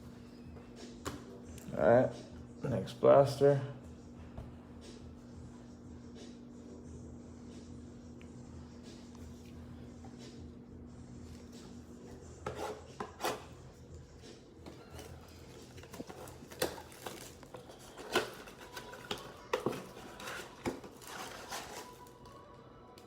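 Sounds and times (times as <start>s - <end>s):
plastic wrap and cardboard crinkling: 14.8s - 22.5s.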